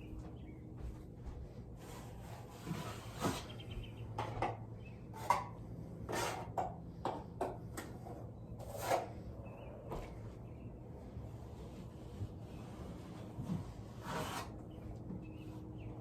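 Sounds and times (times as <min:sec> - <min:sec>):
drywall knife scraping compound: 0:01.8 - 0:03.6, 0:05.1 - 0:07.2, 0:08.0 - 0:09.3, 0:11.4 - 0:14.9.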